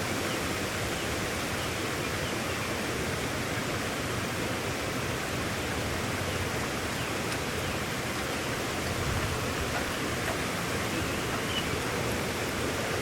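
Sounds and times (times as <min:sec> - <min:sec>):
heavy rain falling: 0:02.7 - 0:13.0.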